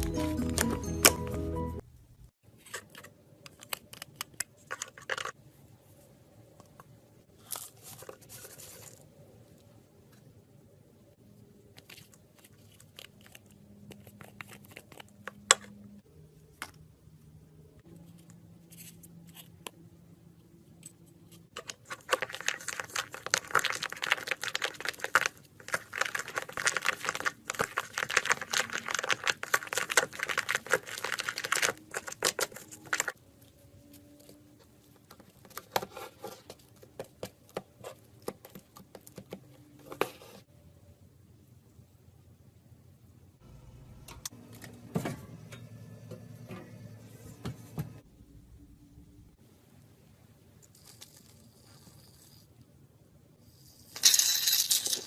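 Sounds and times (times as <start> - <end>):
dense crackling and crinkling: 6.7 - 10.3, 20.8 - 40.5.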